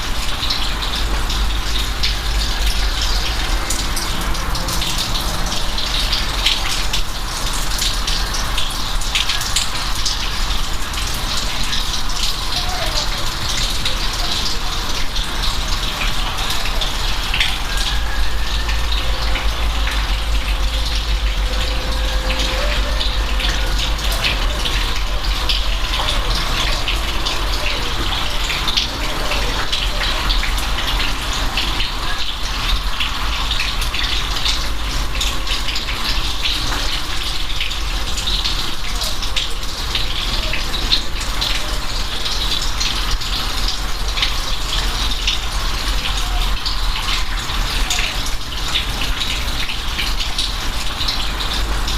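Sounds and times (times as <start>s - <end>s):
rain falling: 0.0s - 51.9s
low rumble: 18.6s - 25.6s.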